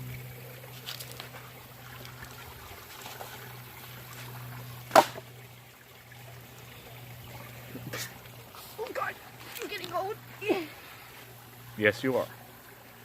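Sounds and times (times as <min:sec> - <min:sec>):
creek trickling: 0:00.0 - 0:13.0.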